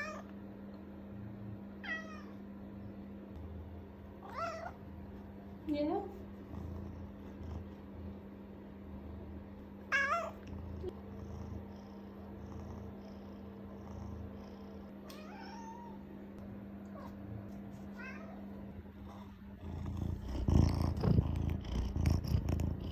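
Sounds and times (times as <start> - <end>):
cat meowing: 4.2 - 4.8.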